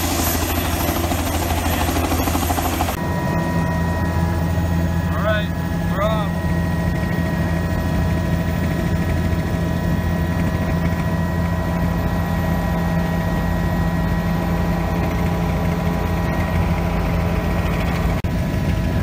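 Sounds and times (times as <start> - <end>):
high whining tones: 0.0 - 18.2
helicopter engine and rotor drone: 0.0 - 19.0.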